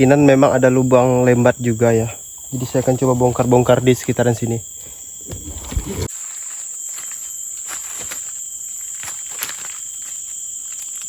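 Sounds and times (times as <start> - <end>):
insects droning: 0.0 - 11.0
footsteps in undergrowth: 4.9 - 11.0
low handling thud: 5.2 - 6.1.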